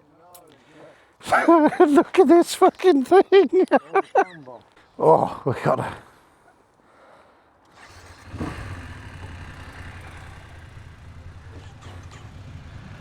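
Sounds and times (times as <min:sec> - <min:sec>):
engine starting and idling: 0:07.6 - 0:13.0.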